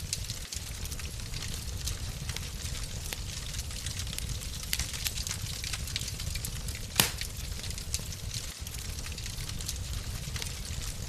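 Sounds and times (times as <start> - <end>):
wood fire crackling: 0.0 - 11.0
loud pop from fire: 6.8 - 7.7.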